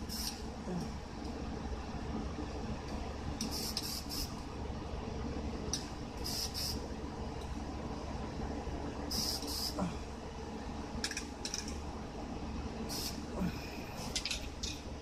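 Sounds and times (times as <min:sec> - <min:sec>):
spray paint can hissing: 0:00.1 - 0:00.4, 0:03.4 - 0:04.3, 0:06.2 - 0:06.8, 0:09.1 - 0:09.7, 0:12.9 - 0:13.2.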